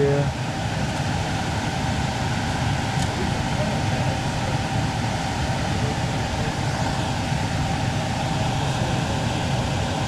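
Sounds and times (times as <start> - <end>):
air conditioner fan rushing: 0.0 - 10.0
faint steady whine: 0.0 - 10.0
motor and compressor hum: 0.0 - 10.0.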